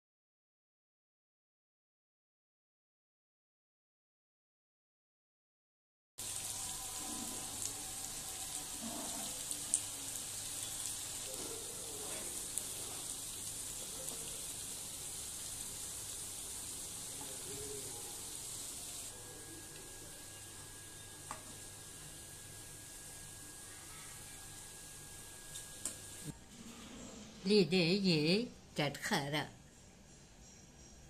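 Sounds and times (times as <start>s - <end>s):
meat sizzling in oil: 6.2s - 19.2s, 20.2s - 26.3s
spoon scraping a pan: 8.6s - 9.9s.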